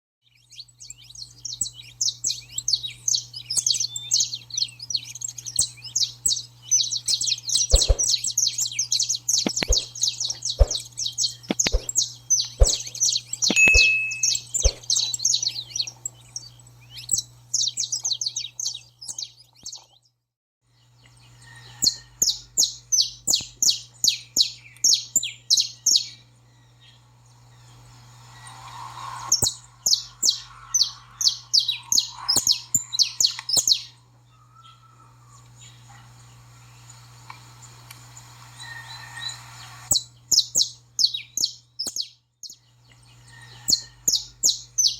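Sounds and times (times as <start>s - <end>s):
finches singing: 0.2s - 19.8s, 21.2s - 37.0s
steady low hum: 7.6s - 8.4s, 9.2s - 17.5s, 26.2s - 38.6s
sharp clicks: 7.7s - 8.1s, 9.4s - 9.9s, 11.5s - 12.0s, 12.6s - 15.0s.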